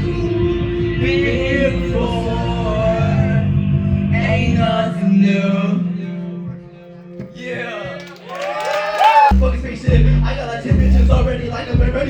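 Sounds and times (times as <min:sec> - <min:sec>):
person singing: 0:00.0 - 0:08.0, 0:09.3 - 0:12.0
heavy bass beat: 0:09.3 - 0:12.0
held low note: 0:09.4 - 0:12.0.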